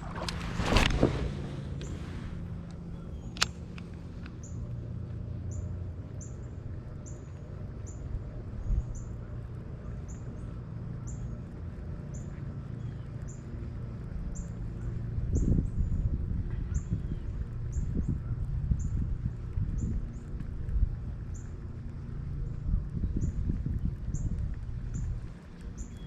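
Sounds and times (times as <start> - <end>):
steady low rumble: 0.0 - 26.0
bird chirping: 25.7 - 26.0.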